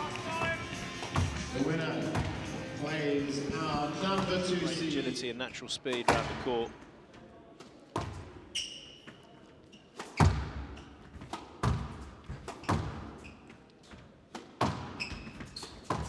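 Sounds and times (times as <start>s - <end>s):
squash ball cracking off rackets: 0.0s - 1.5s
ball thudding into walls: 0.0s - 2.6s, 3.5s - 4.8s, 5.9s - 6.5s
shoes squeaking on floor: 0.0s - 5.0s, 8.0s - 16.0s.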